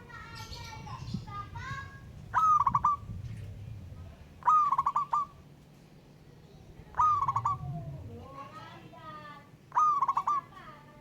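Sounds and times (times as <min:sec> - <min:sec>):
dove cooing: 0:02.3 - 0:03.2, 0:04.4 - 0:05.4, 0:06.9 - 0:08.2, 0:09.7 - 0:10.7.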